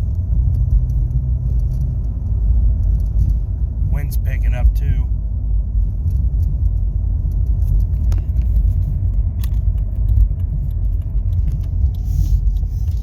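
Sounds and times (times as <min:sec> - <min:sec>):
engine and road rumble: 0:00.0 - 0:13.0
light clicks and rattles: 0:06.0 - 0:13.0.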